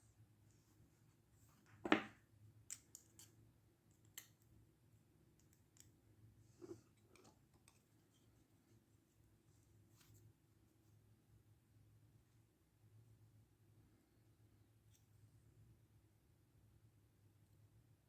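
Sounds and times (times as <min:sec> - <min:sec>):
hand tools tapping on workbench: 0:01.8 - 0:02.2.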